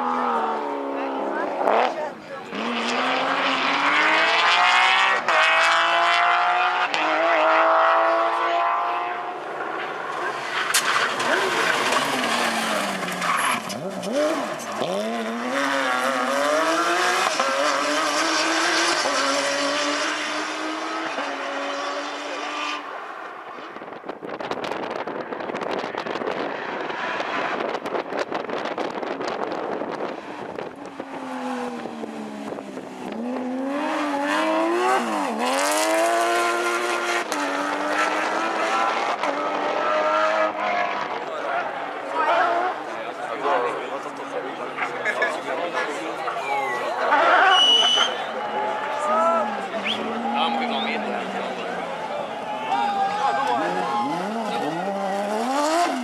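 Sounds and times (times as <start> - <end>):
rally car engine accelerating: 0.0 - 56.0.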